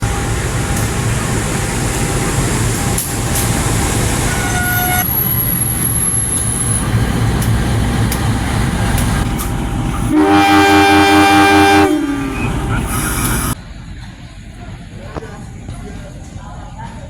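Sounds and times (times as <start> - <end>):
locomotive horn blast: 0.0 - 1.6, 4.2 - 5.1, 9.9 - 13.6
train rumbling: 0.0 - 17.0.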